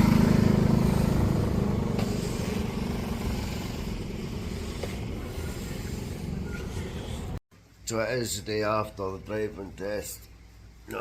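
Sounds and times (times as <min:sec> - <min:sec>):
traffic and road noise: 0:00.0 - 0:07.4
vehicle engine running: 0:00.0 - 0:07.4.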